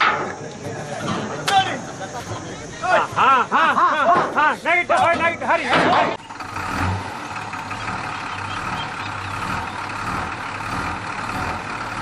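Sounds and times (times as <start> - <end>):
heavy vehicle engine running: 6.1 - 12.0.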